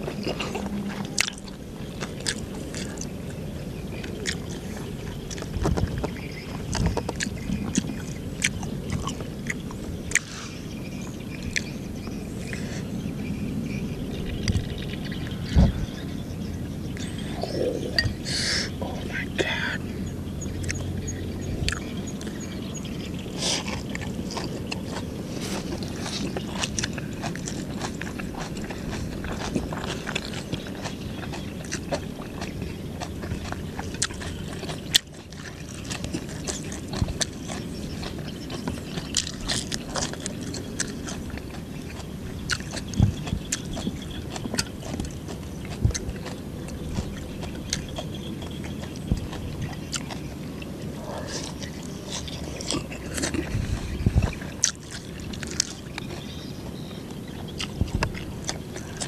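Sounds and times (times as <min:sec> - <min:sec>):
chewing crunchy leaves: 0:00.0 - 0:59.0
wet mouth clicks: 0:21.6 - 0:22.3.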